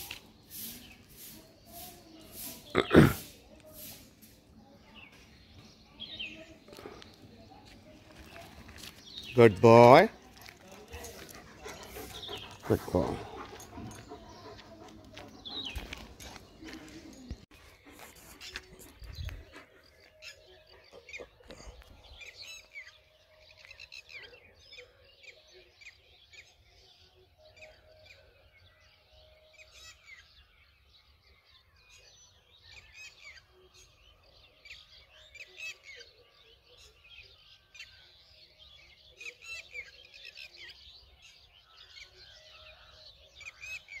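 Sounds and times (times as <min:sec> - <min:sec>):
birds chirping: 0:00.0 - 0:44.0.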